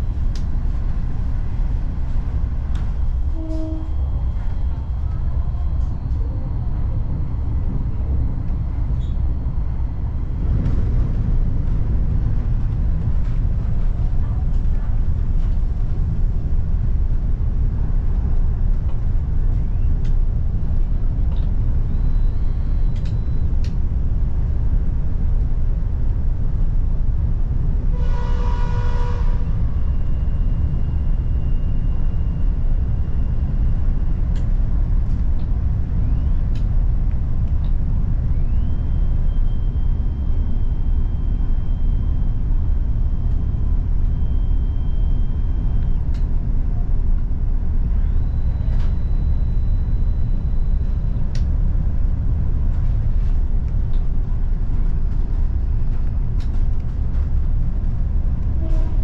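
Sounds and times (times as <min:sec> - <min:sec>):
train running low rumble: 0:00.0 - 0:59.0
faint clicks: 0:22.9 - 0:23.8.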